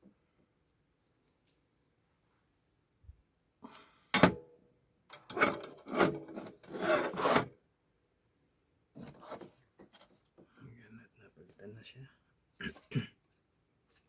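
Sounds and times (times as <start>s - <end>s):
tool scraping circuit board: 5.4s - 7.5s.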